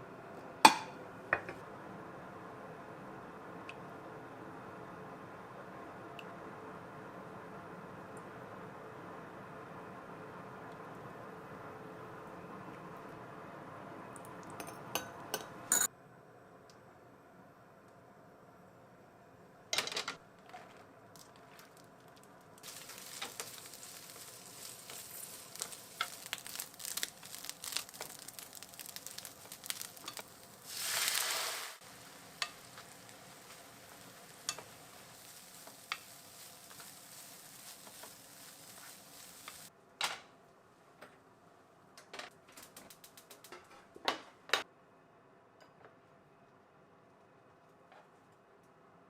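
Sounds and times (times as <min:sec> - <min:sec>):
food sizzling in frying pan: 0:21.1 - 0:39.7.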